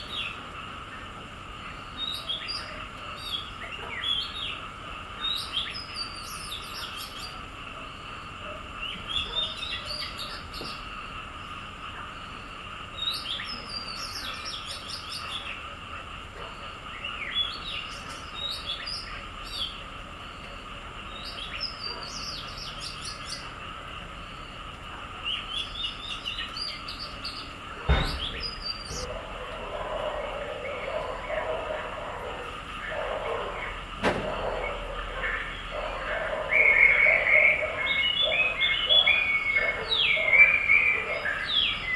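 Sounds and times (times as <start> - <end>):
small birds chirping: 0.0 - 41.9
steady high hum: 0.0 - 41.9
thump: 27.9 - 29.0, 34.0 - 34.4.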